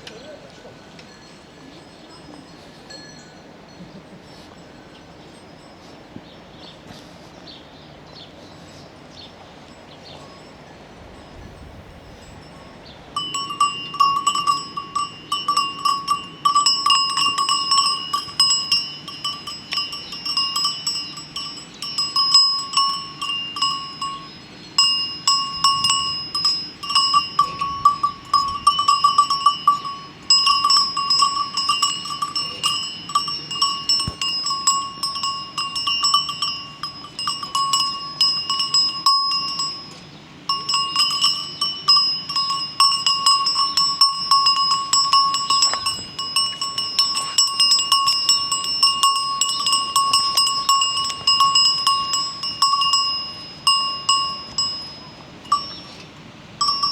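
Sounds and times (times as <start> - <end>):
cowbells clanking: 1.0 - 6.0, 11.2 - 56.9.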